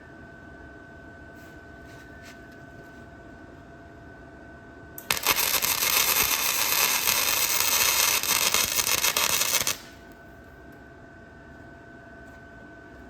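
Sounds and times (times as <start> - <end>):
welding arc crackling: 5.0 - 10.0.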